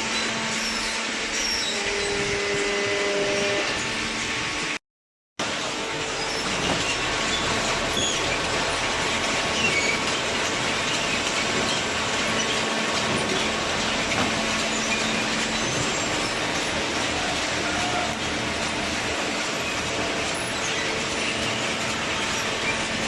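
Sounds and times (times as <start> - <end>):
short high squeaks: 0.1 - 4.0, 14.2 - 18.2
machinery humming: 5.4 - 23.0.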